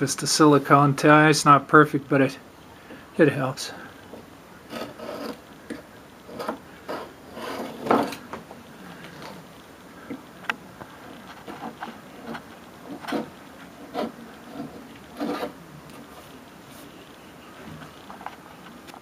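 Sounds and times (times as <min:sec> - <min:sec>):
hand tool scraping wooden frame: 0:04.7 - 0:08.4, 0:11.1 - 0:16.2.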